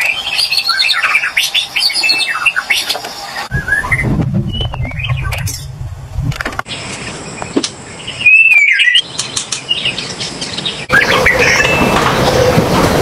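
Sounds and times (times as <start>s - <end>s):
bird singing whistled phrase: 3.5s - 5.4s, 8.2s - 9.0s
low rumble: 3.5s - 6.6s.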